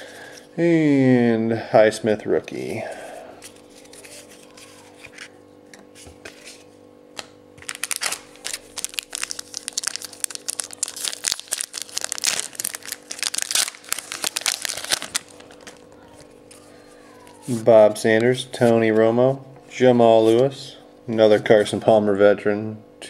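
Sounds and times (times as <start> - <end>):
foil wrapper tearing and crinkling: 7.6 - 17.4.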